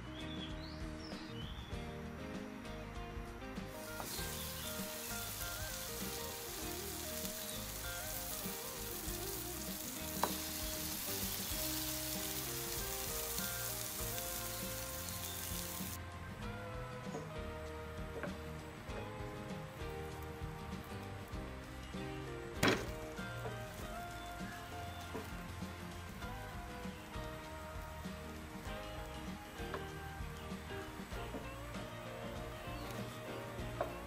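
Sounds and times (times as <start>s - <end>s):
background music: 0.0s - 34.0s
bread sizzling in a pan: 3.7s - 16.0s, 19.6s - 34.0s.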